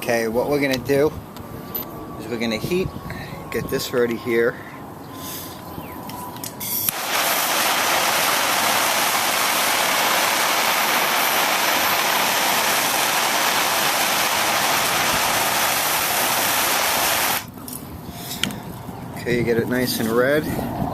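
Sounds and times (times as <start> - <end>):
gas torch hissing: 6.6 - 17.5.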